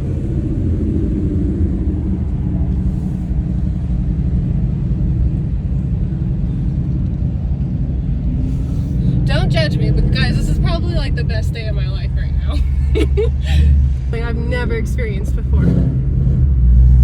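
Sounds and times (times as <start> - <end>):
car engine running steadily: 0.0 - 17.0
road rumble: 0.0 - 17.0.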